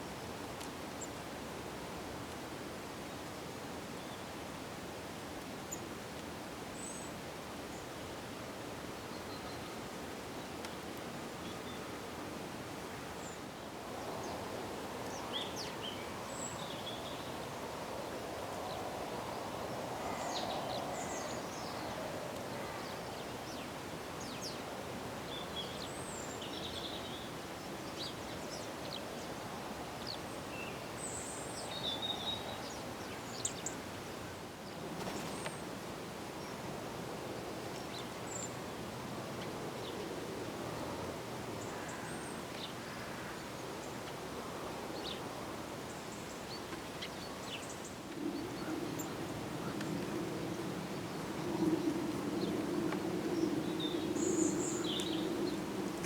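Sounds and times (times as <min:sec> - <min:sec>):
small birds chirping: 0:53.4 - 0:56.0.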